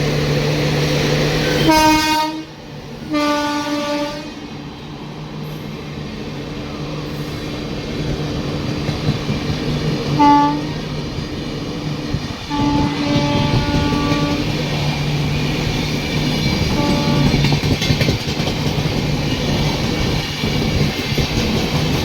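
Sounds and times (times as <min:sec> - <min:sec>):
train horn: 0:01.4 - 0:04.6, 0:10.2 - 0:10.9, 0:12.4 - 0:14.6, 0:16.6 - 0:17.6.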